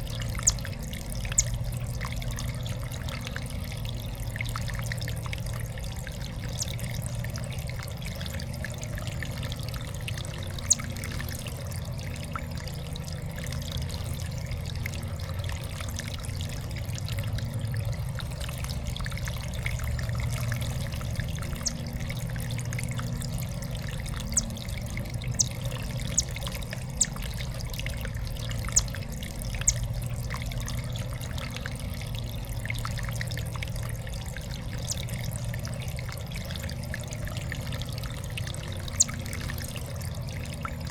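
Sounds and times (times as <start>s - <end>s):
fountain water trickling: 0.0s - 40.9s.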